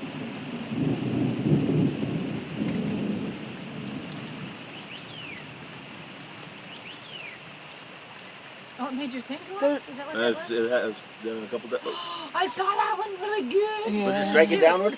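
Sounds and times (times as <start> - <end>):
thunder rumbling: 0.0 - 6.0
steady rain: 0.0 - 14.9.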